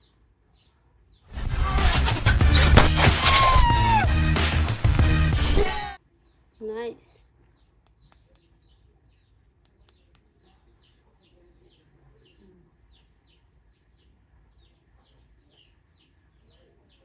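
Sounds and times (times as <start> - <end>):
small bird chirping: 7.4 - 17.0.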